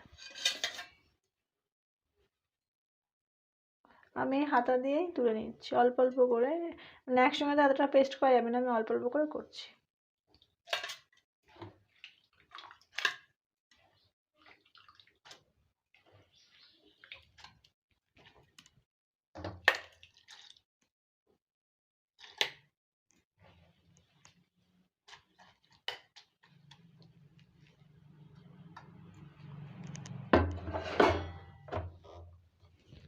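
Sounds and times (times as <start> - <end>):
water dripping and splashing: 11.5 - 18.8, 19.6 - 20.7.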